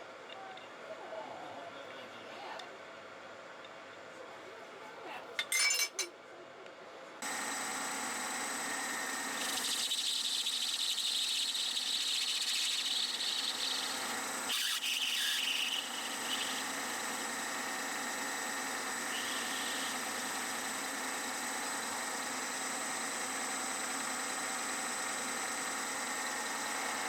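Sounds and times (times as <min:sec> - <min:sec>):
metal lathe running: 0:07.2 - 0:27.0.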